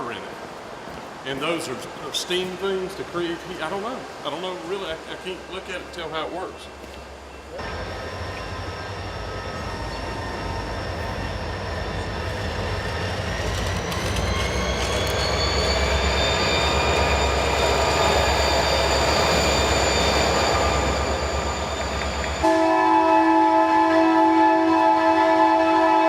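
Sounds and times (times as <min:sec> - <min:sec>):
train rumbling past: 0:01.8 - 0:26.0
wheels squealing: 0:07.4 - 0:22.5.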